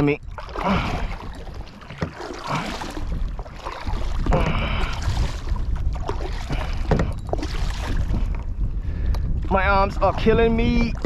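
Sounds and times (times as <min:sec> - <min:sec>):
water moving against kayak: 0:00.0 - 0:11.0
wind rumbling on microphone: 0:00.0 - 0:11.0
man breathing hard: 0:04.4 - 0:05.1.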